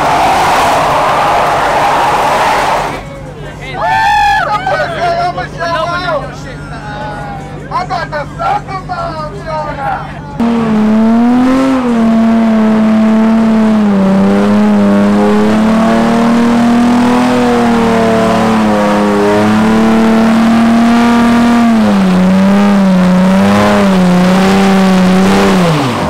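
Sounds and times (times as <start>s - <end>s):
car engine revving high: 0.0s - 3.1s, 10.4s - 26.0s.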